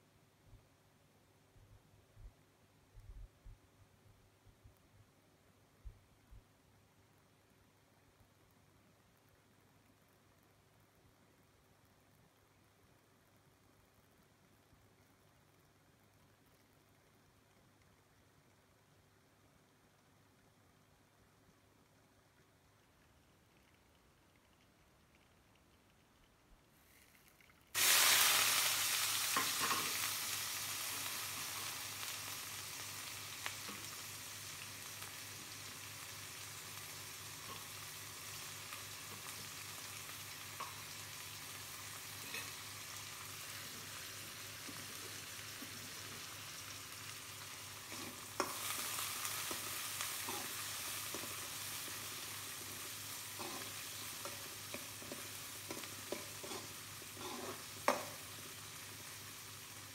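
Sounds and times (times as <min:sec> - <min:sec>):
onions sizzling in hot oil: 0:27.7 - 0:59.9
spatula scraping a pan: 0:42.2 - 0:42.7, 0:53.3 - 0:58.2.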